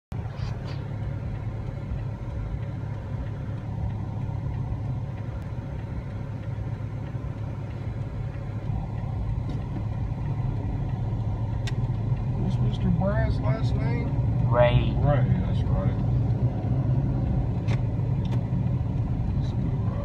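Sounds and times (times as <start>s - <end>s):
car engine humming: 0.1s - 20.0s.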